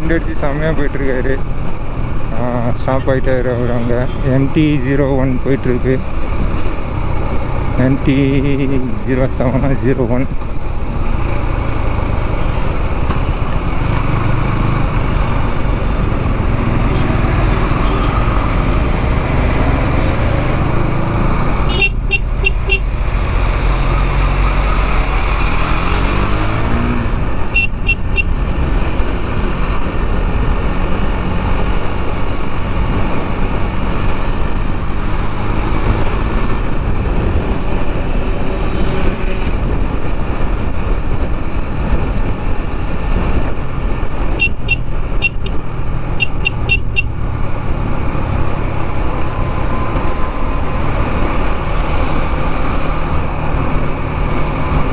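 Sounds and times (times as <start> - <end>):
motorcycle engine riding: 0.0 - 54.9
horn short beeps: 21.7 - 22.9, 27.5 - 28.3, 44.4 - 45.6, 46.2 - 47.1
wind rumble on microphone: 22.9 - 46.0.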